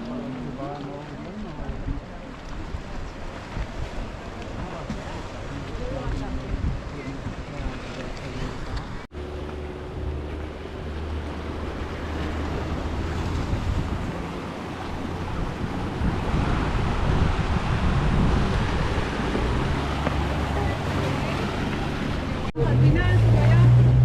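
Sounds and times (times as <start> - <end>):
rushing water: 0.0 - 24.0
wind noise on microphone: 1.5 - 9.1, 9.9 - 24.0
motorboat engine drone: 8.8 - 24.0.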